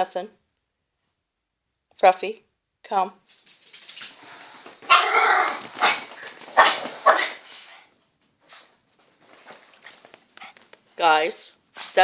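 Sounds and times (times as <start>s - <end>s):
dog barking: 4.9s - 7.4s.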